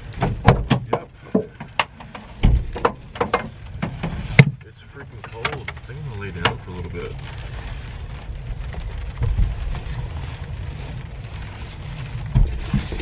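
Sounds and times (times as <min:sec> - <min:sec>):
low rumble: 0:00.0 - 0:13.0
rain pattering on a shell roof: 0:00.0 - 0:13.0
dull knocks: 0:00.2 - 0:04.6, 0:12.3 - 0:13.0.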